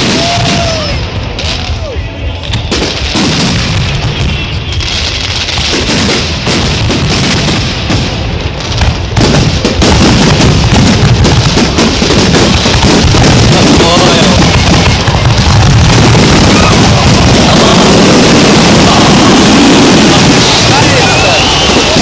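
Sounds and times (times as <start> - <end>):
fireworks booming and crackling: 0.0 - 22.0.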